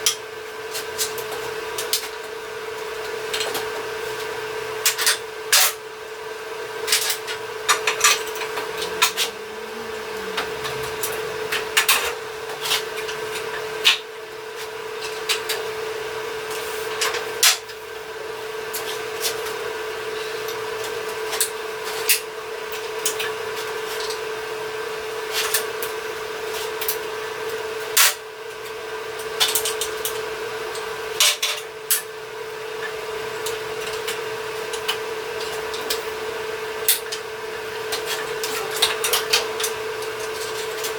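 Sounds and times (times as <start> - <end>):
metalworking tool humming: 0.0 - 24.8.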